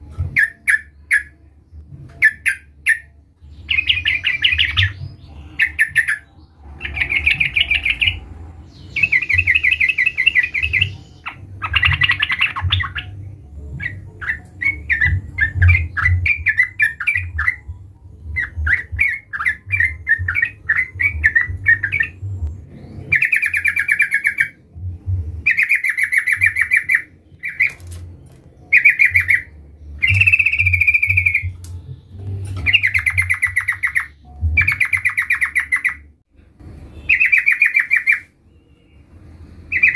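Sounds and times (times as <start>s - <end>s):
bird singing bubbling phrases: 0.3s - 24.8s, 25.4s - 27.8s, 28.6s - 36.2s, 37.0s - 39.1s, 39.7s - 39.9s.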